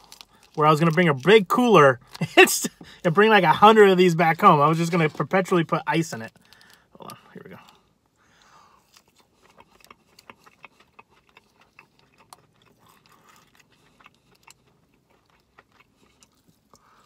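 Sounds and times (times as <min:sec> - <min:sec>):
chewing fried chicken: 0:00.0 - 0:17.0.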